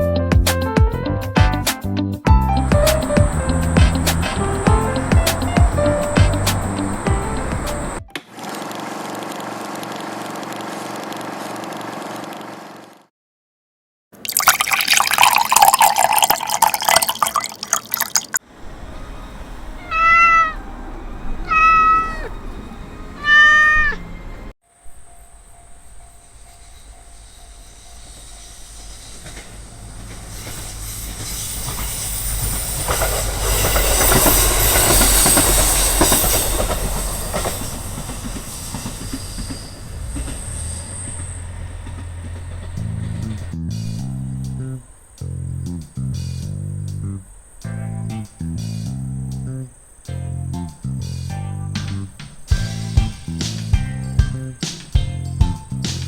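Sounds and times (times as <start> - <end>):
train passing rumble: 2.3 - 8.1, 18.4 - 56.0
high wheel squeal: 2.6 - 8.0, 18.4 - 55.9
rising and falling calls: 18.6 - 24.5.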